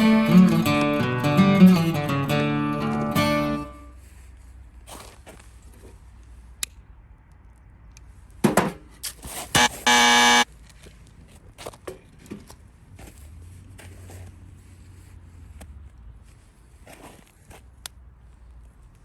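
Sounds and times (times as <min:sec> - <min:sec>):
loud buzzing tone: 0:09.6 - 0:10.4.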